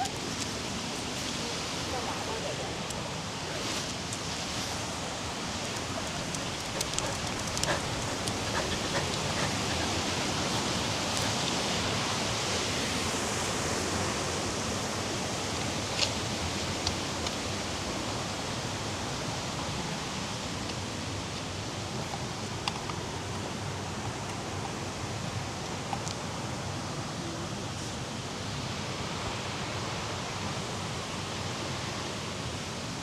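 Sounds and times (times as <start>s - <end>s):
flowing water rushing: 0.0s - 25.8s.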